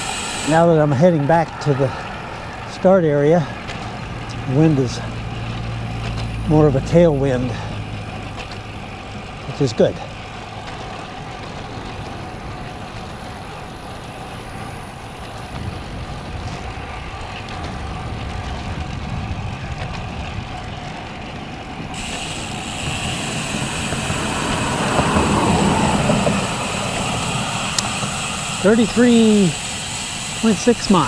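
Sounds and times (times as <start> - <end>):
wind noise while cycling: 0.0 - 6.8, 10.1 - 31.0
motor vehicle passing: 0.0 - 18.3, 21.7 - 31.0.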